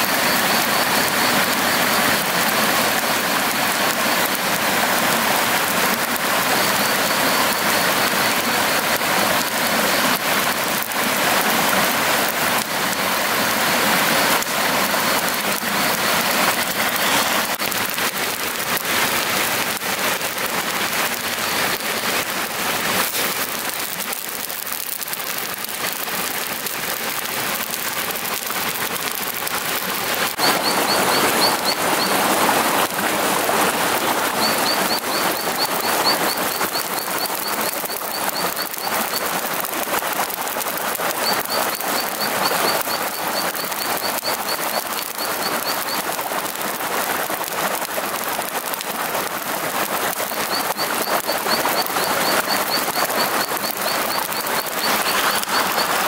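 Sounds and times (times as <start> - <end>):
crackling hiss: 0.0 - 56.0.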